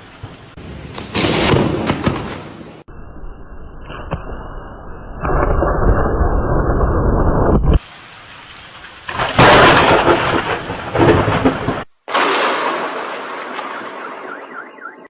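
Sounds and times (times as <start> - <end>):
rain: 0.0 - 2.4, 5.2 - 14.6
thunder rumbling: 8.6 - 15.0.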